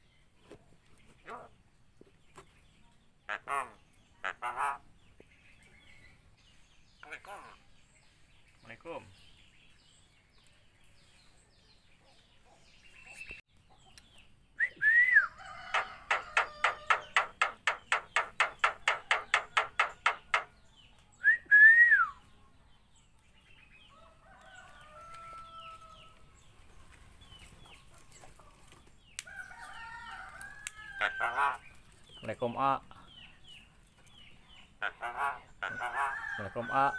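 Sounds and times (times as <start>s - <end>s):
bird rapid rhythmic chatter: 15.5s - 20.6s, 30.9s - 36.2s.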